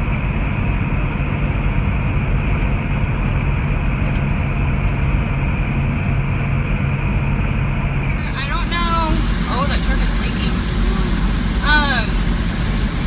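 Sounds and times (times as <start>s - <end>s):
road noise: 8.2s - 13.0s
truck engine drone in cab: 8.2s - 13.0s.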